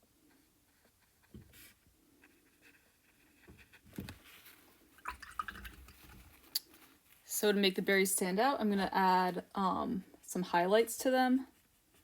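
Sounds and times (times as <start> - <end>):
paintbrush splashing in water jar: 4.9 - 6.7.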